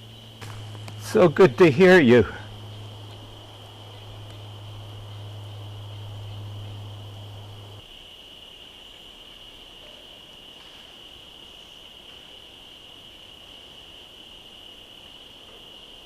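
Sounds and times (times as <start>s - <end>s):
low hum: 0.0s - 7.8s
crickets droning: 0.0s - 16.0s.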